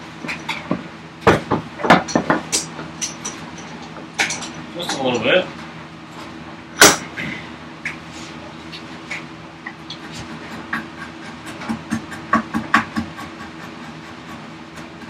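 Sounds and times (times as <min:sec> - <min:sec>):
chisel scraping wood: 0:09.9 - 0:15.0.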